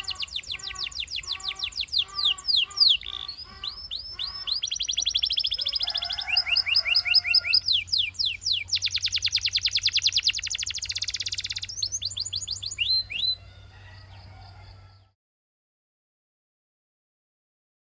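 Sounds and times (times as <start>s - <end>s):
canary singing trills: 0.0s - 13.5s.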